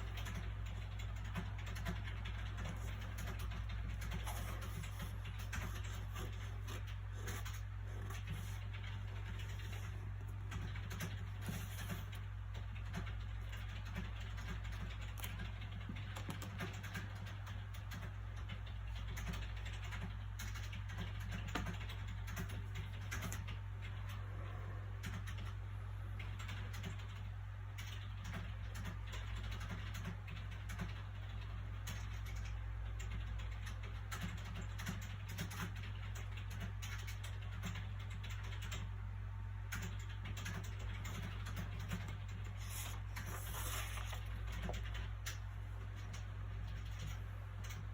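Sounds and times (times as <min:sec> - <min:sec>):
low background hum: 0:00.0 - 0:47.9
book pages rustling: 0:42.5 - 0:45.0.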